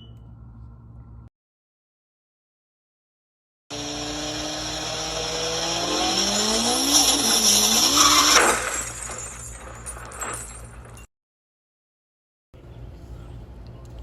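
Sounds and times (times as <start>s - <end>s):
car engine revving: 3.7s - 9.4s
high tire squeal: 3.7s - 9.8s.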